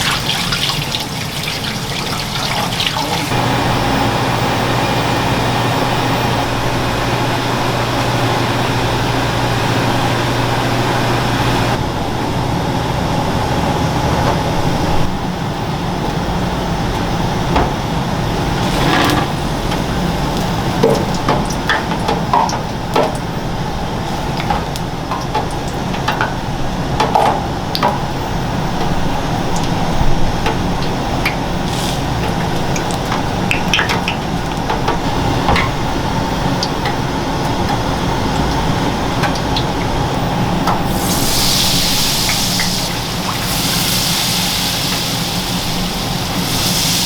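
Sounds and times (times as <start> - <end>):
utensils and dishes clinking: 0.0 - 3.4
steady background hum: 0.0 - 47.0.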